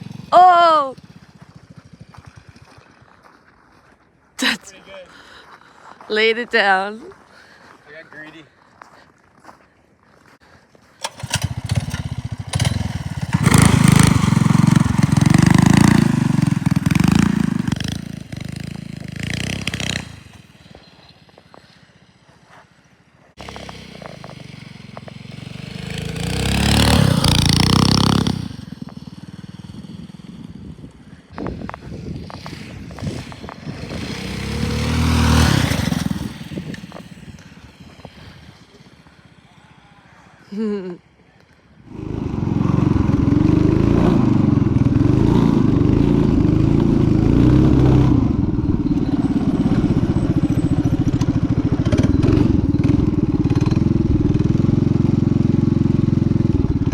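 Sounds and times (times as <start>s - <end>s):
minibike engine revving hard: 11.0s - 22.2s, 23.4s - 40.4s, 41.8s - 56.9s.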